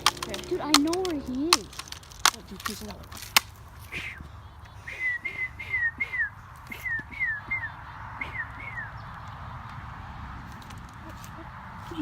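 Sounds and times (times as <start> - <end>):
bird whistling downward notes: 3.5 - 11.3.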